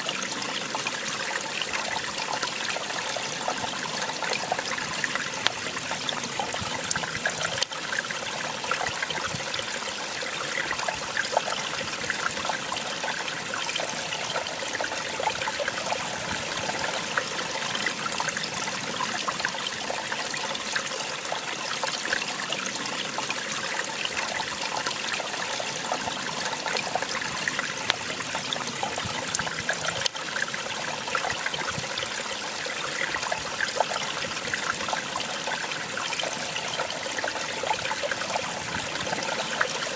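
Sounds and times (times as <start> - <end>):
water splashing over rocks: 0.0 - 39.9.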